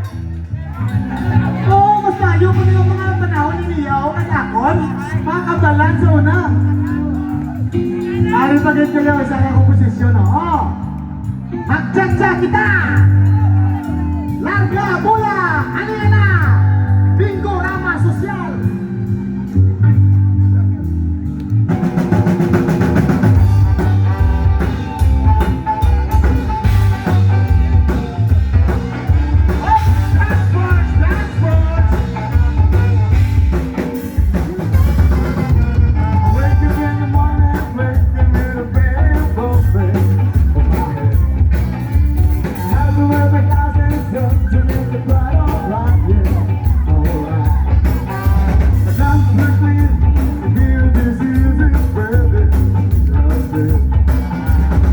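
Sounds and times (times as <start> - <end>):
rock band playing: 0.0 - 54.9
person singing: 23.4 - 54.9.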